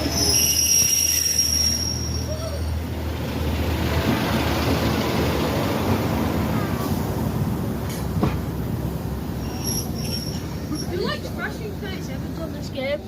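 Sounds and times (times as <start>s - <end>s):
train high-pitched squeal: 0.0s - 2.9s, 9.4s - 11.0s
train rumbling: 0.0s - 13.0s.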